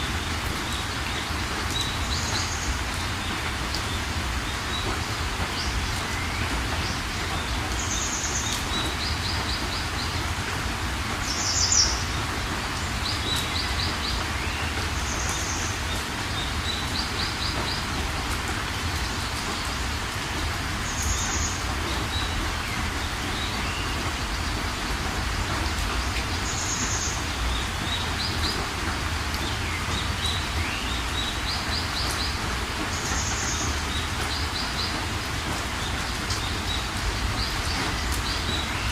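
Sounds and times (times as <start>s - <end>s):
birds singing: 0.0s - 38.9s
steady rain: 0.0s - 38.9s.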